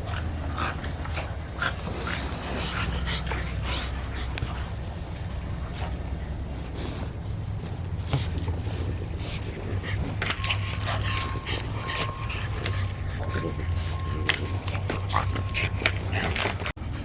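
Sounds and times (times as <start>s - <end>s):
low hum: 0.0s - 17.0s
dog whimpering and yipping: 9.3s - 16.7s.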